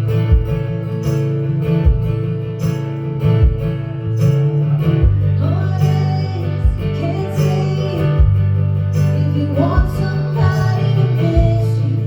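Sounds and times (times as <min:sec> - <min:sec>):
person singing: 0:05.1 - 0:12.0.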